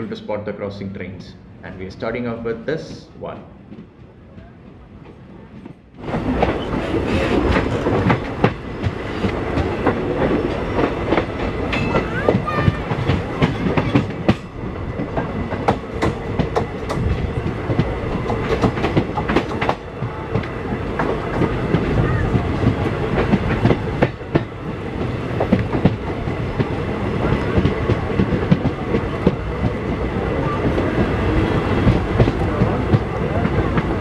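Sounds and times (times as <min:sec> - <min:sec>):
train rumbling on rails: 0:00.0 - 0:34.0
wheels clacking over rail joints: 0:03.7 - 0:34.0.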